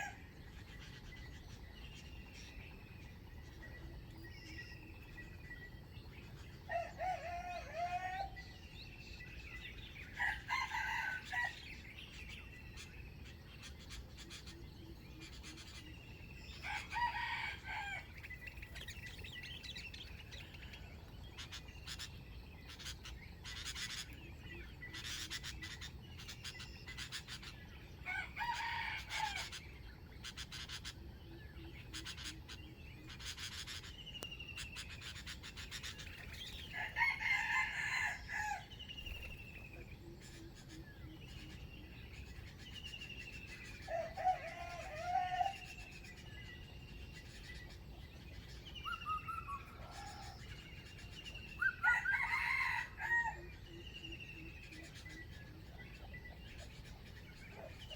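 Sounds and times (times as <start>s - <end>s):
rooster crowing: 6.7s - 8.4s, 10.2s - 11.6s, 16.6s - 18.2s, 28.1s - 29.5s, 36.7s - 38.7s, 43.9s - 45.7s, 51.8s - 53.4s.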